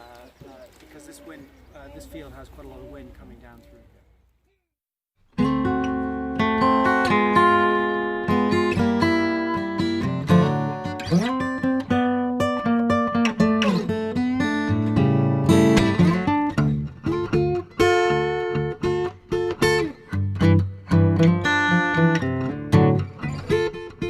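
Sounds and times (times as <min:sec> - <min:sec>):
acoustic guitar strummed and picked: 0:05.3 - 0:24.0.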